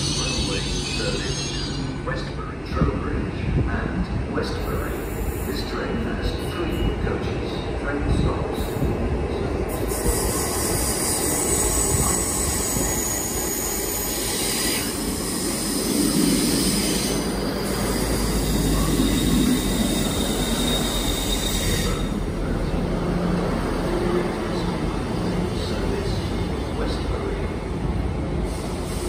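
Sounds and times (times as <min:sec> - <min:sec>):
train wheels squealing: 0:00.0 - 0:02.3, 0:09.7 - 0:22.2.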